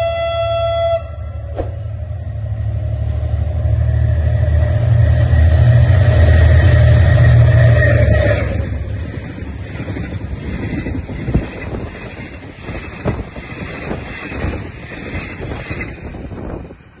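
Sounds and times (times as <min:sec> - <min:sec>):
train coaches rushing past: 0:01.6 - 0:17.0
wind on the microphone: 0:09.0 - 0:17.0.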